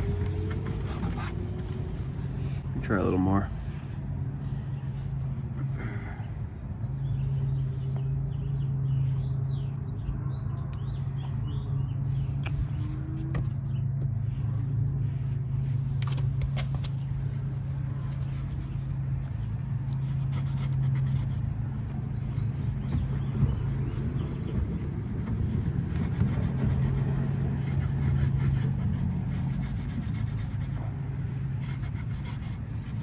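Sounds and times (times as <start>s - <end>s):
low engine hum: 0.0s - 33.0s
bird chirps: 6.8s - 12.9s.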